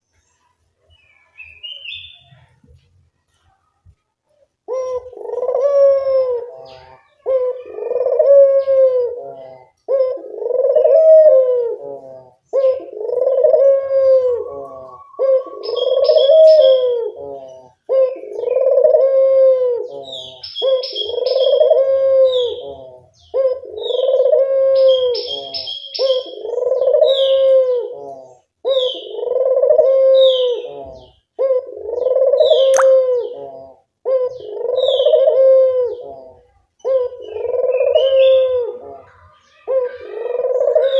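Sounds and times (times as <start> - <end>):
small birds chirping: 0.0 - 3.9, 14.3 - 18.7, 19.9 - 40.9
dove cooing: 4.6 - 40.9.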